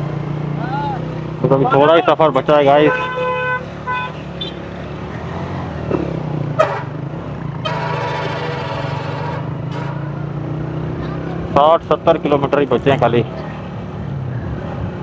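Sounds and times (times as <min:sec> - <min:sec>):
motorcycle horn: 0:02.8 - 0:04.6, 0:06.6 - 0:07.0, 0:07.6 - 0:10.0.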